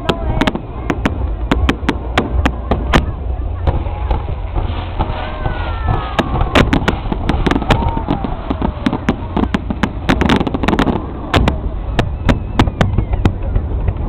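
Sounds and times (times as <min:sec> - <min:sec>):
deep rumble: 0:00.0 - 0:14.0
fireworks cracks and bangs: 0:00.0 - 0:14.0
falling firework whistle: 0:04.6 - 0:14.0.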